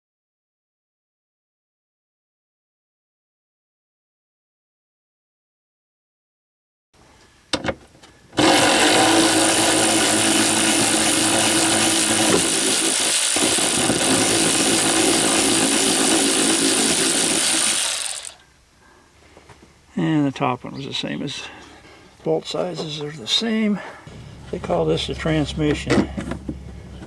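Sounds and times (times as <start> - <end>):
power driver running: 8.4 - 18.4.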